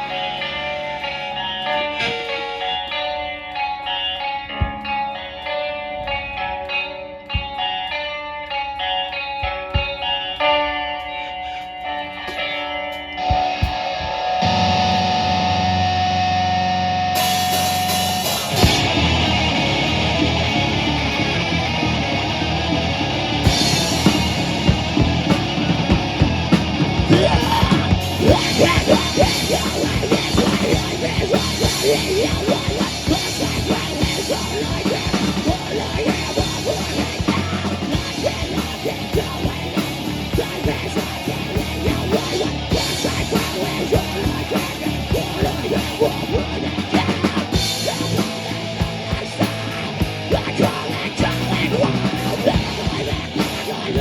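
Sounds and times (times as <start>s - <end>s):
live rock band playing: 0.0s - 8.0s, 8.7s - 54.0s
drum kit fast beat: 17.2s - 54.0s.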